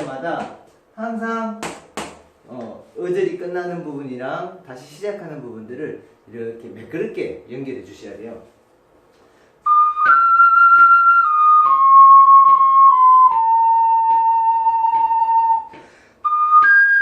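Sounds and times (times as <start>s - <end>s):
person breathing: 9.2s - 9.6s, 15.7s - 16.3s
ocarina melody: 9.6s - 17.0s.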